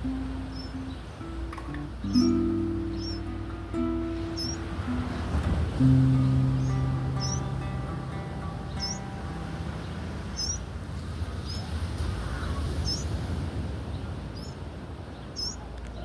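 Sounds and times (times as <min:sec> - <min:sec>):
low outdoor rumble: 0:00.0 - 0:16.0
small bird chirping: 0:00.3 - 0:04.8, 0:06.1 - 0:07.9, 0:08.6 - 0:09.4, 0:10.2 - 0:10.7, 0:11.4 - 0:11.7, 0:12.3 - 0:13.2, 0:14.3 - 0:14.6, 0:15.3 - 0:15.7.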